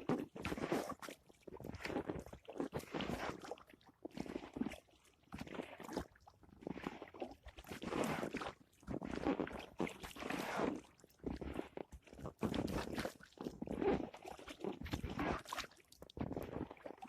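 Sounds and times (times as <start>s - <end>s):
kayak paddle splashing: 12.5s - 16.0s.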